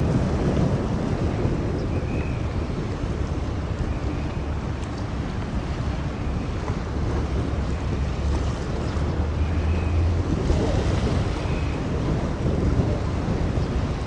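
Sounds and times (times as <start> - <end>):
strong wind on microphone: 0.0 - 14.0.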